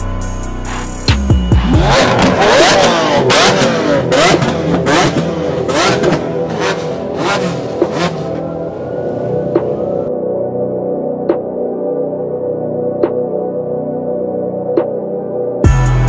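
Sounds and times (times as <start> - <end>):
car engines revving: 1.5 - 10.1
exhaust cracks: 1.6 - 10.1.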